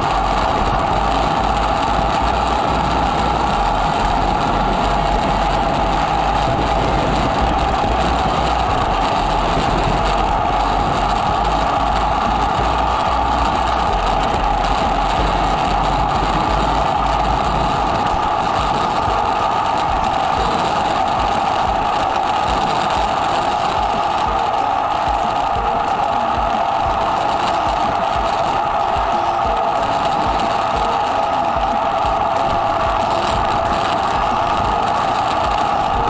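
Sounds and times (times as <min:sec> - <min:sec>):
motorcycle engine running: 0:00.0 - 0:36.0
wind rumble on microphone: 0:00.0 - 0:36.0.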